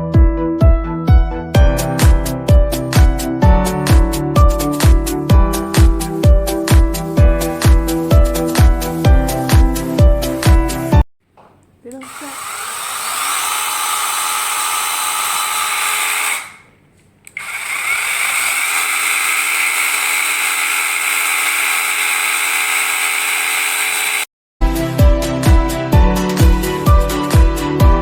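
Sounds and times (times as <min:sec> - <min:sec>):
electric chainsaw motor whine: 0:11.9 - 0:24.3.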